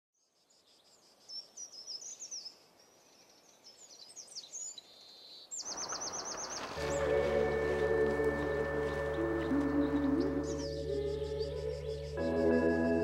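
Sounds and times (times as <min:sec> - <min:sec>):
forest ambience hiss: 0:00.2 - 0:13.0
songbirds chirping: 0:00.2 - 0:13.0
bird trill: 0:05.6 - 0:12.8.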